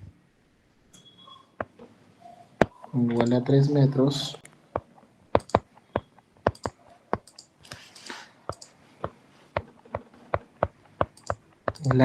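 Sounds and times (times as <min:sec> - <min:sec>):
keys clicking: 0:05.4 - 0:08.8, 0:09.6 - 0:12.0.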